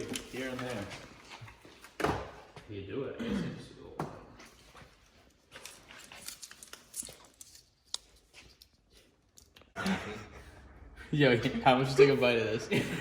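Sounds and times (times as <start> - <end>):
seal strip rustling and tearing: 5.6 - 9.6.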